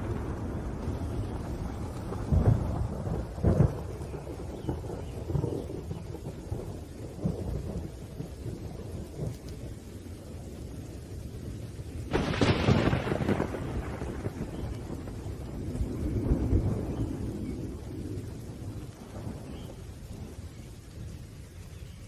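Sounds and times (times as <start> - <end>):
loud thunderclap: 0.0 - 9.8, 12.0 - 20.4
rolling thunder: 0.0 - 22.0
steady rain: 0.0 - 22.0.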